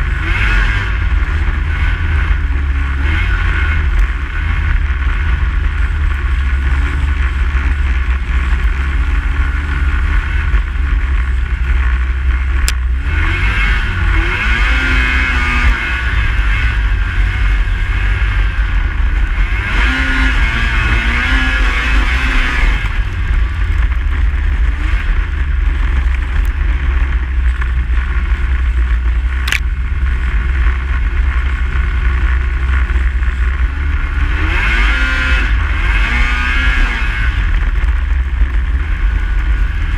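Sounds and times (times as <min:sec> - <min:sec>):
snowmobile engine revving: 0:00.0 - 0:39.9
wind rumble on microphone: 0:00.0 - 0:39.9
sharp clicks: 0:29.4 - 0:29.7.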